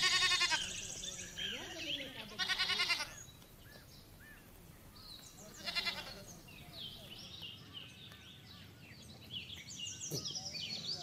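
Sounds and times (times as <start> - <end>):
quavering bleat: 0.0 - 0.8, 2.2 - 3.2, 5.6 - 6.3
small birds chirping: 0.0 - 11.0.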